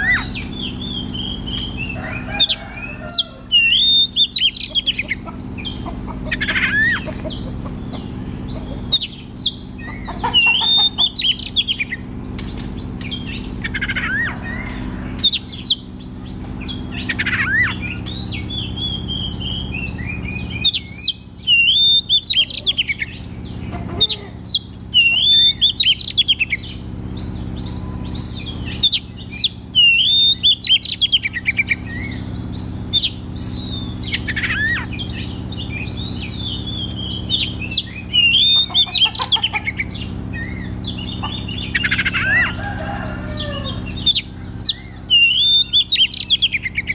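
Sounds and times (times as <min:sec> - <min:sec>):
steady low hum: 0:00.0 - 0:46.9
bird singing whistles: 0:03.6 - 0:04.6, 0:16.8 - 0:22.5, 0:27.2 - 0:38.7, 0:44.1 - 0:46.9.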